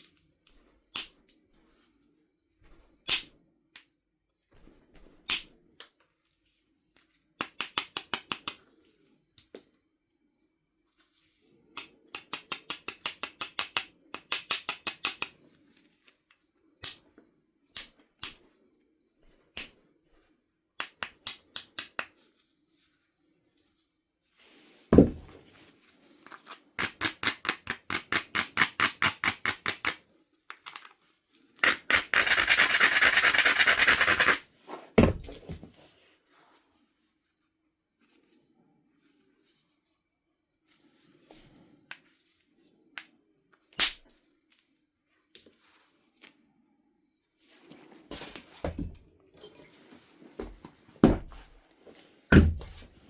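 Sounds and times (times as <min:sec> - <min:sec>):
flint knapping strikes: 0:03.1 - 0:03.4
heavy deep strike on stone: 0:24.9 - 0:25.3.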